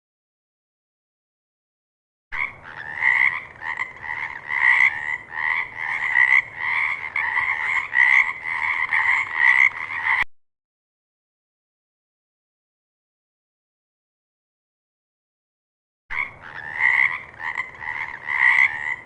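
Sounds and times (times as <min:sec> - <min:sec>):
frog croaking: 0:02.4 - 0:10.2, 0:16.1 - 0:19.0.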